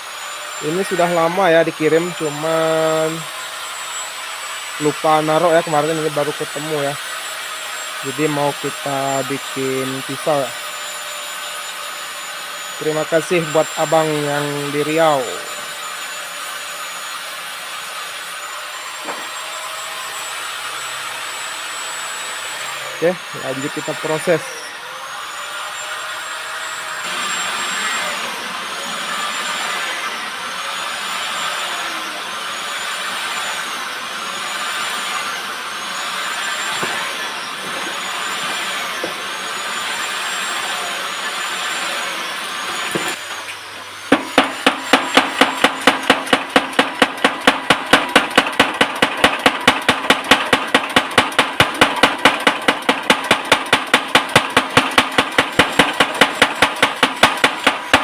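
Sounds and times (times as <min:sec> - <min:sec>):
rasping machine with whine: 0:00.0 - 0:58.0
hammer blows on steel: 0:44.1 - 0:58.0.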